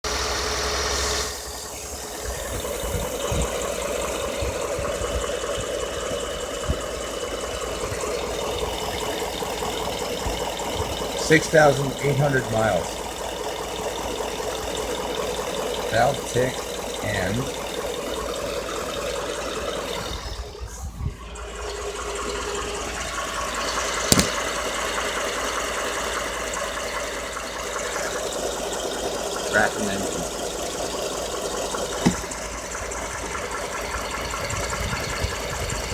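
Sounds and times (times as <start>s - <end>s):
engine idling: 0.0s - 35.9s
engine ticking and knocking: 0.0s - 35.9s
sharp click: 24.1s - 24.4s.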